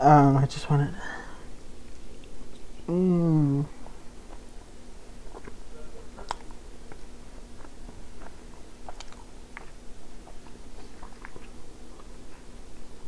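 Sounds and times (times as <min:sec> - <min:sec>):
chewing with mouth clicks: 0:01.8 - 0:02.9, 0:03.7 - 0:13.0.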